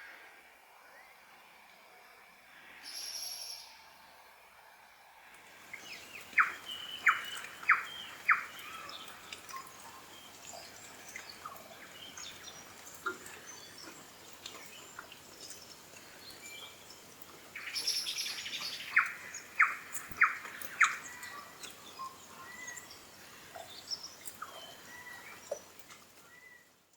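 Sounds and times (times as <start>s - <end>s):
bird singing clear notes: 5.7s - 12.7s
soft bird chirps: 5.7s - 26.7s.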